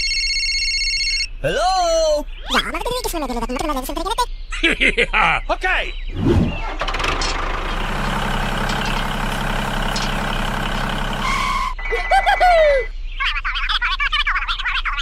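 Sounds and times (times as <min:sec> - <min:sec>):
motor running: 0:06.5 - 0:11.8.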